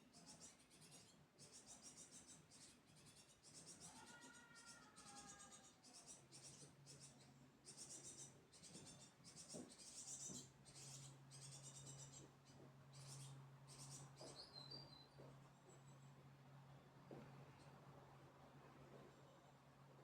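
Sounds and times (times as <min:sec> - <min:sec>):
fledglings begging calls: 0:00.2 - 0:15.0.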